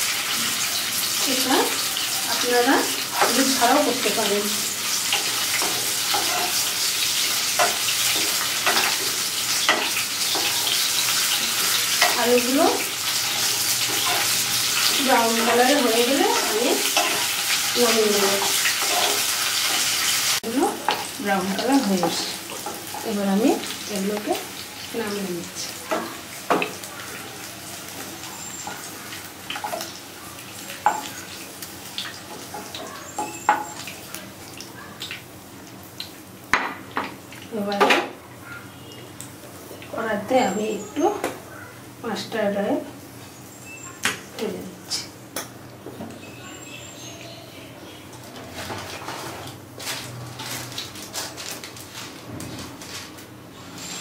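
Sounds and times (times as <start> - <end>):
potatoes sizzling in hot oil: 0.0 - 37.9
spatula scraping a pan: 4.9 - 12.2, 13.0 - 15.8, 16.4 - 20.3.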